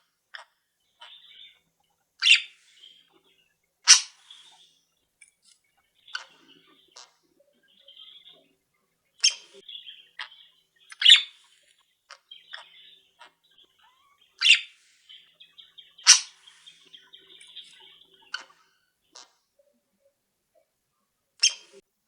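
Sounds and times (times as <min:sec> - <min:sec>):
cage birds twittering: 0:00.0 - 0:21.8
loud sharp bird chirps: 0:01.0 - 0:03.2, 0:03.8 - 0:04.8, 0:09.2 - 0:19.3, 0:21.4 - 0:21.8.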